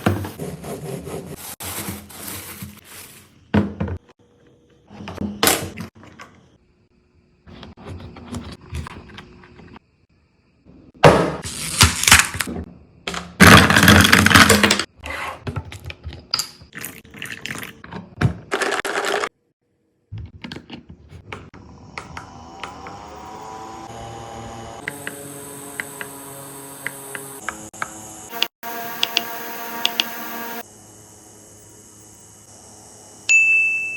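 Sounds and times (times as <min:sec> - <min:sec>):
rustling and handling noises: 0:01.2 - 0:03.4
electric fan motor hum: 0:21.6 - 0:31.1.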